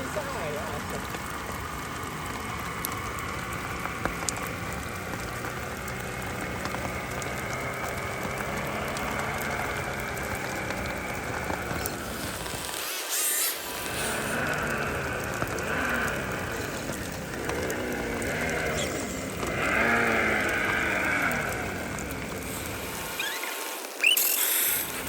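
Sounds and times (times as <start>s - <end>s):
rain hissing: 0.0s - 25.0s
electric motor and gears whining: 5.1s - 25.0s.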